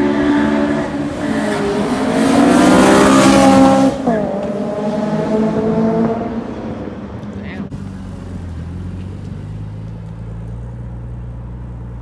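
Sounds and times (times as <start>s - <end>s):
car engine revving: 0.0s - 12.0s
tire noise: 0.0s - 12.0s.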